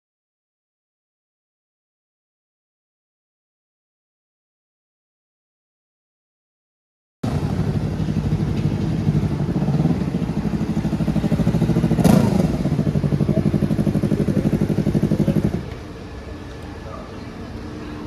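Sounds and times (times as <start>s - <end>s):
motorcycle engine running: 7.2s - 17.1s.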